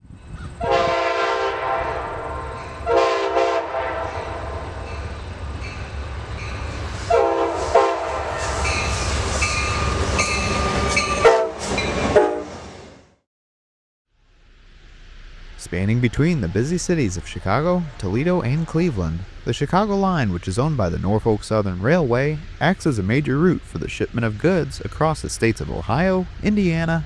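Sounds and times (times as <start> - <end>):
train engines and wheels rumbling: 0.0 - 13.2, 14.2 - 27.0
locomotive air horn blasts: 0.6 - 4.8, 7.1 - 8.8, 11.2 - 12.6.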